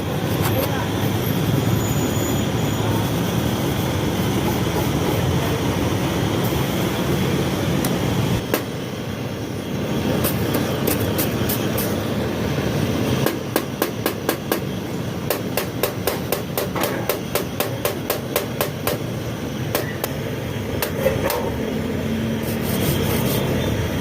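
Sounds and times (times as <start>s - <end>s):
steady background noise: 0.0s - 24.0s
hammer tapping on metal: 13.2s - 14.7s, 15.3s - 19.0s.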